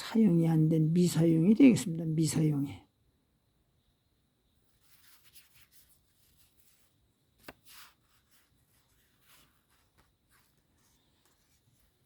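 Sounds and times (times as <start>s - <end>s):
faint rustles: 4.6s - 12.0s.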